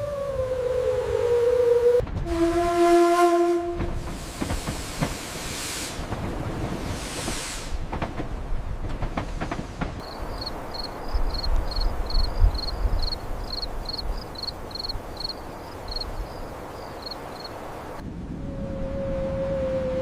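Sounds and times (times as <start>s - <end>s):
steady outdoor hiss: 2.9s - 20.0s
cricket chirping: 10.0s - 18.0s.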